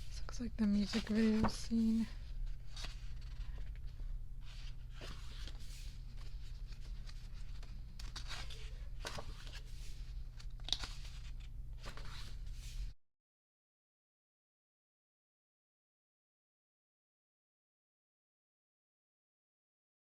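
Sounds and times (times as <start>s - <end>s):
steady low hum: 0.0s - 13.0s
paper pages rustling: 0.7s - 12.9s.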